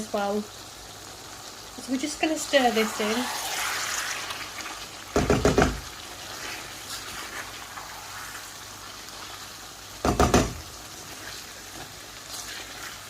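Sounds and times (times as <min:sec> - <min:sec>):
sauce simmering hiss: 0:00.0 - 0:13.0
spoon knocking against pan: 0:05.2 - 0:05.8, 0:10.0 - 0:10.6.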